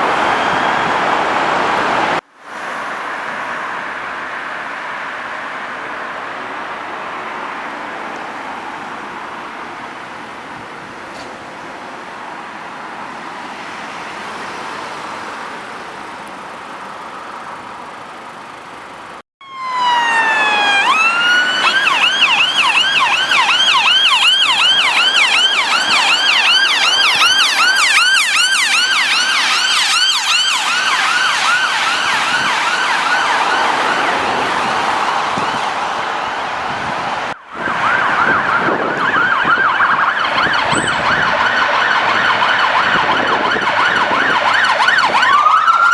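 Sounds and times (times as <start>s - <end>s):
two-tone ambulance siren yelp: 0.0s - 2.2s, 19.4s - 45.9s
road traffic noise: 0.0s - 45.9s.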